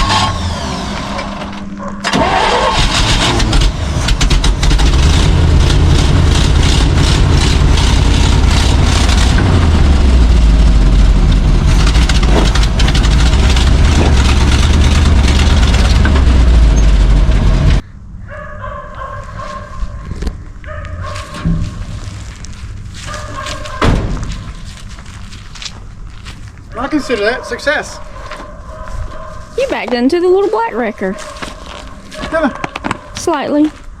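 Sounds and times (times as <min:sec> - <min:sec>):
truck engine running: 0:00.0 - 0:17.8.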